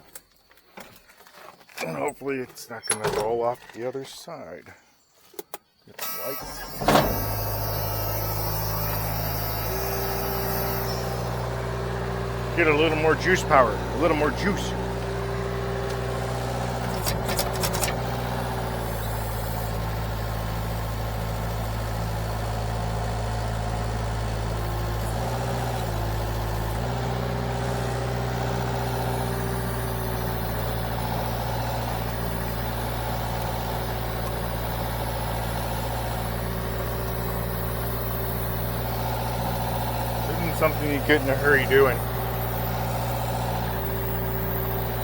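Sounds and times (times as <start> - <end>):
engine running at raised throttle: 6.0 - 45.0
sharp clicks: 15.8 - 18.4.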